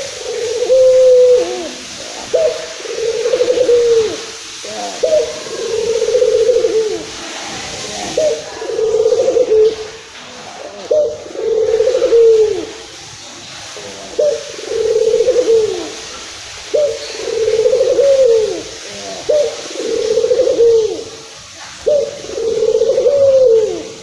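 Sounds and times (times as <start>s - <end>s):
dove cooing: 0.0s - 24.0s.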